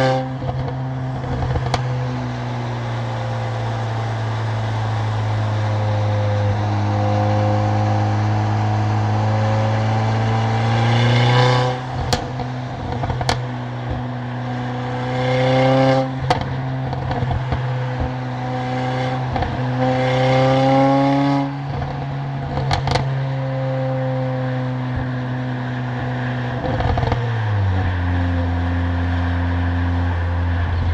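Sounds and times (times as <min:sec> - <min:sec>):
car engine accelerating through gears: 0:00.0 - 0:30.9
exhaust cracks: 0:11.5 - 0:14.3.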